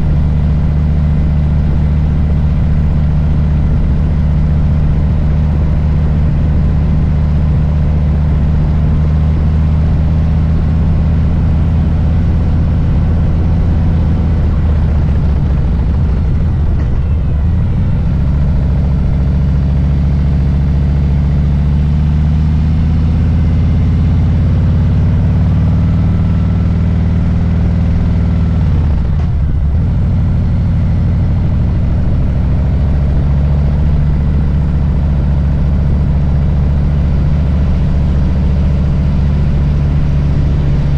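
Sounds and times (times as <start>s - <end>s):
motorcycle engine rumbling: 0.0s - 40.9s.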